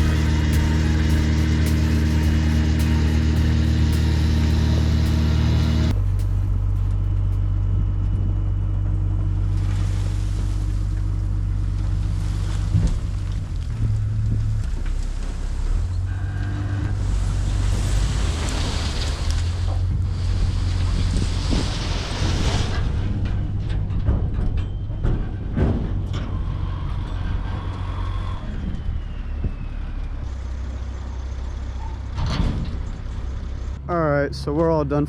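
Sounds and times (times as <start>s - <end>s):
engine running: 0.0s - 35.0s
wind noise: 16.9s - 30.0s.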